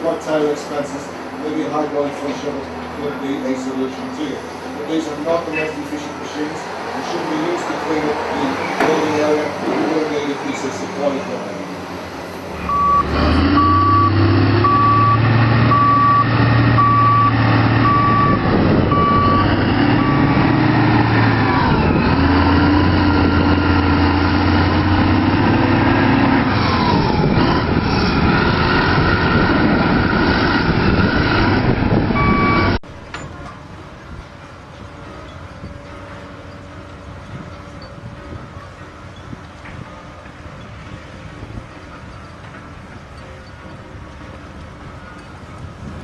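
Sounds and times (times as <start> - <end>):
diesel engine working under load: 0.0 - 46.0
reversing alarm beeps: 12.6 - 20.3, 32.2 - 32.8.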